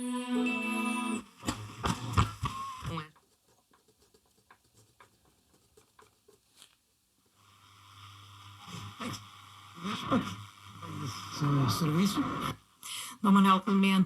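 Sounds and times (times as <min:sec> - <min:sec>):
radio static hiss: 0:01.2 - 0:03.1, 0:07.3 - 0:14.0
radio crackling clicks: 0:01.4 - 0:03.0, 0:08.0 - 0:12.6.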